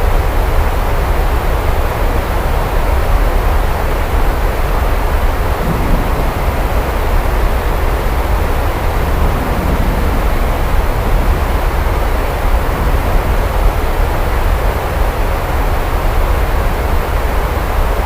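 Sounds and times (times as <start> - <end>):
heavy rain falling: 0.0 - 18.0
deep rumble: 4.2 - 17.6.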